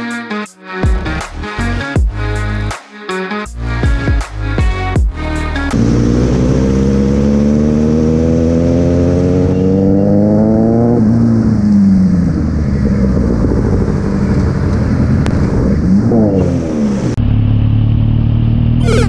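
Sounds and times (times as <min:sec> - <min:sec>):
motorcycle engine accelerating: 0:05.6 - 0:19.0
wind and road noise: 0:05.7 - 0:18.8.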